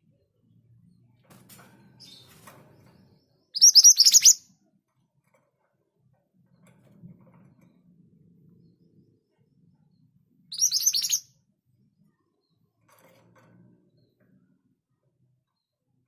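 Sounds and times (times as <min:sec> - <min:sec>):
bird calling rapid high notes: 0:10.6 - 0:11.2.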